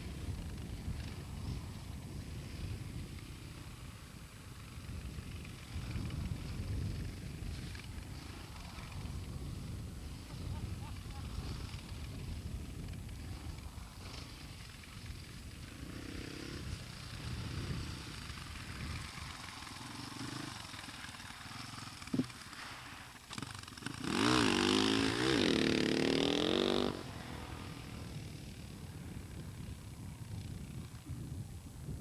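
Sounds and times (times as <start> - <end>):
dirt bike engine revving: 5.5 - 29.8.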